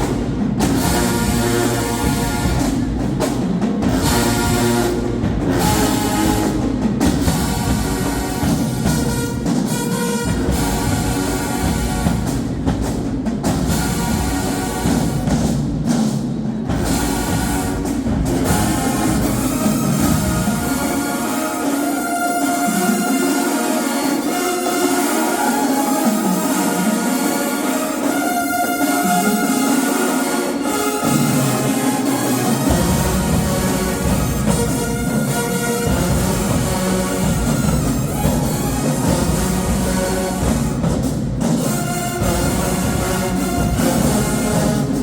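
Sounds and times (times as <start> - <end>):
marching band playing: 0.0 - 45.0.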